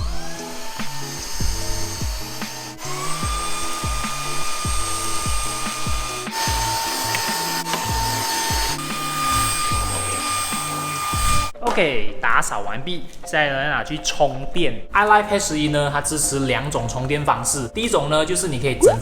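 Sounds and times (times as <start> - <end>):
vacuum cleaner motor whine: 0.0 - 11.5
background music with steady beat: 0.0 - 11.6.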